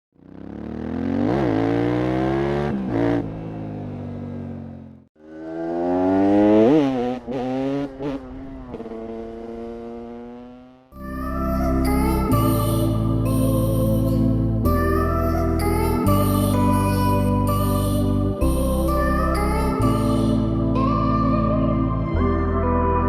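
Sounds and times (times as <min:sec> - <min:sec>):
motorcycle engine revving: 0:00.1 - 0:11.0.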